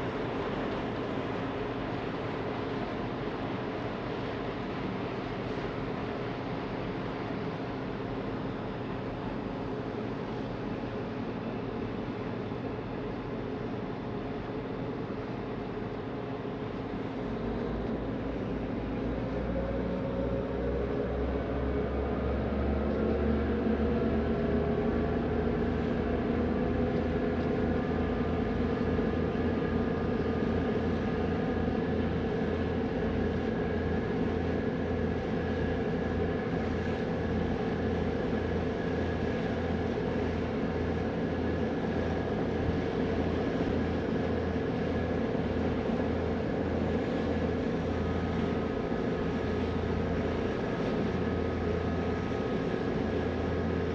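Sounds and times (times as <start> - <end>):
ferry engines droning: 16.8 - 53.9.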